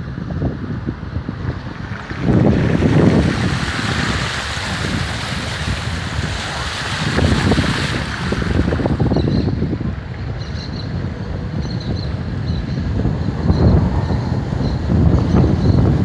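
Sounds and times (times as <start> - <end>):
wind buffeting microphone: 0.0 - 16.0
heavy rain hissing: 1.3 - 9.2.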